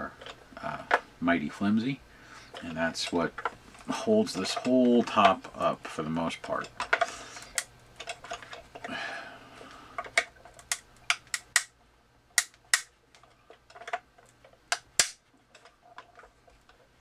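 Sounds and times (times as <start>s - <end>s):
person speaking: 0.0s - 6.8s
glue cracking off plastic: 14.7s - 15.2s.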